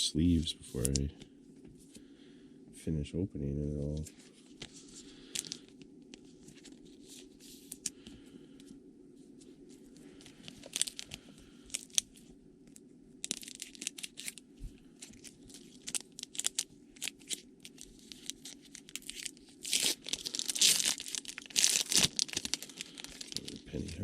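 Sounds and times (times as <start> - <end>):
wrapper crinkling and tearing: 4.6 - 8.0, 10.2 - 12.2, 13.2 - 24.0.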